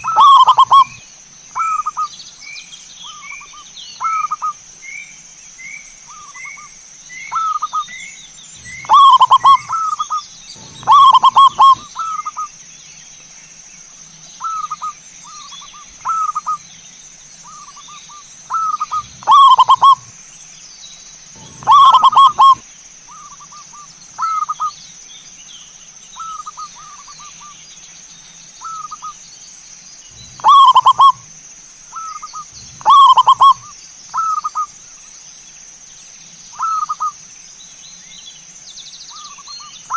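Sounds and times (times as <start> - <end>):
dove cooing: 0.0 - 1.0, 8.6 - 12.5, 18.5 - 20.1, 21.4 - 23.5, 30.2 - 31.3, 32.0 - 34.7
small rising bird chirps: 0.0 - 2.1, 3.0 - 12.6, 14.0 - 20.2, 21.0 - 24.7, 26.2 - 34.7
high-pitched hum: 8.5 - 9.8, 10.5 - 12.0, 21.4 - 22.6.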